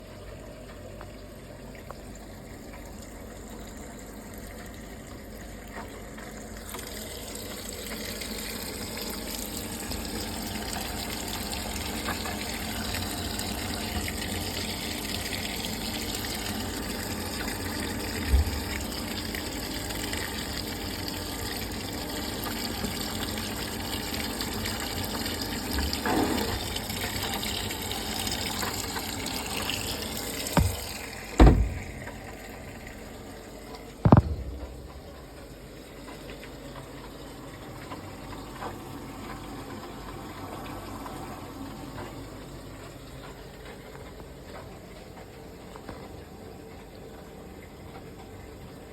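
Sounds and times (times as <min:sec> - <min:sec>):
washing machine filling with water: 0:00.0 - 0:48.9
short thump: 0:30.6 - 0:32.0, 0:34.0 - 0:35.2.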